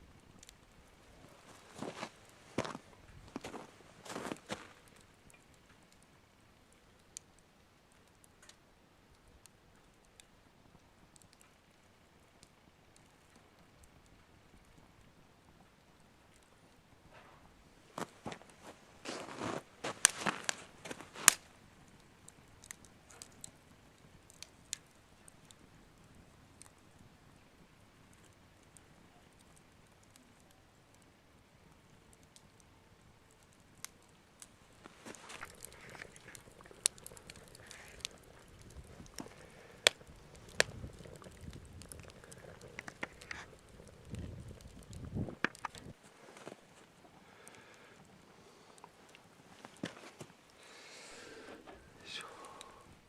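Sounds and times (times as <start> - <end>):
campfire crackling: 0.0 - 53.0
sharp fire pops: 19.0 - 23.5, 33.8 - 46.0.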